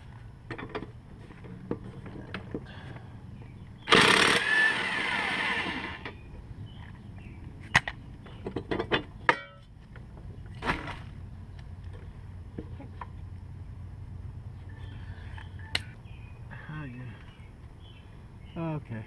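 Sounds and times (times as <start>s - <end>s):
mechanical whir winding down: 3.9s - 6.1s.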